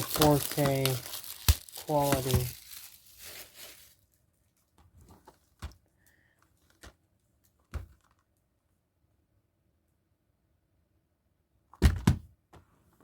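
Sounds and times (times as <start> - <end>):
plastic case rustling: 0.0 - 4.0.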